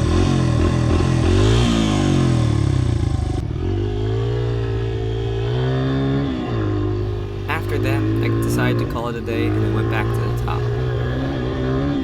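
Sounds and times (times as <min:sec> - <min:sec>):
dirt bike engine revving: 0:07.0 - 0:11.3.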